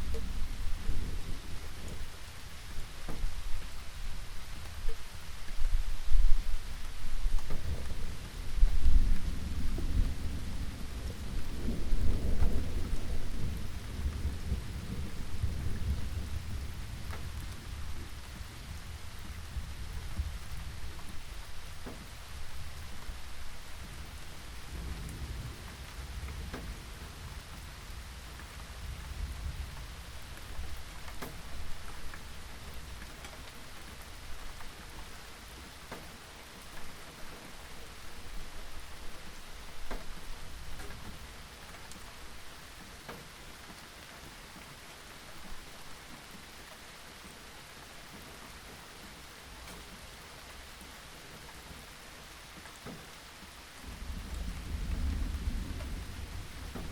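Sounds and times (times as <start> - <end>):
rain falling: 0.0 - 56.9
rolling thunder: 7.4 - 21.2, 21.8 - 32.1, 53.8 - 56.9.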